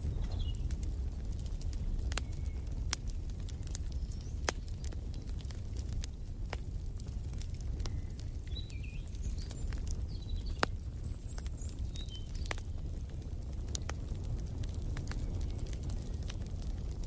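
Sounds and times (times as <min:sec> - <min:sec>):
faint birds chirping: 0:00.0 - 0:06.1, 0:07.0 - 0:13.0
wood fire crackling and popping: 0:00.0 - 0:17.0.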